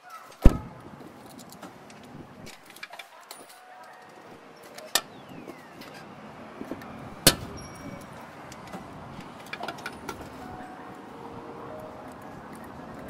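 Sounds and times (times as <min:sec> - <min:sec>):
low background noise: 0:00.0 - 0:13.0
metal tools clinking and rattling: 0:07.2 - 0:10.5.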